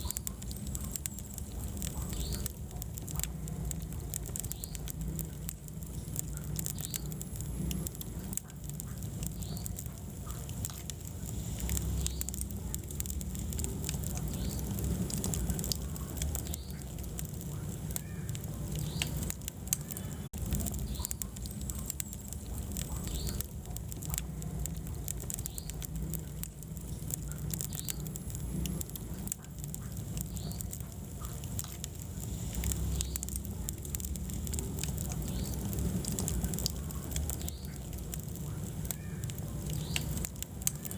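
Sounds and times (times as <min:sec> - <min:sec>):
burning wood crackling and popping: 0:00.0 - 0:40.9
fire rumbling in fireplace: 0:00.0 - 0:40.9.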